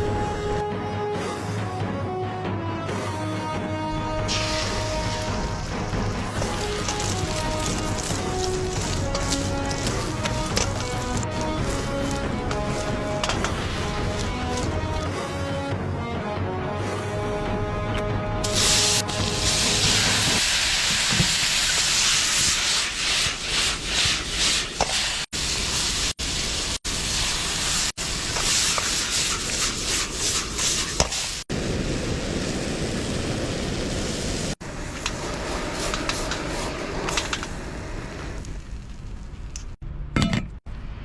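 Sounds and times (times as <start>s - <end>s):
food sizzling in a pan: 4.3s - 14.7s, 18.5s - 36.7s.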